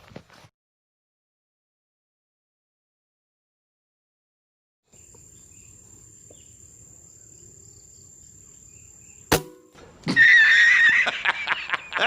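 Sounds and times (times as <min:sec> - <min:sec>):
insects chirring: 0:04.9 - 0:09.4
sharp crack: 0:09.3 - 0:09.9.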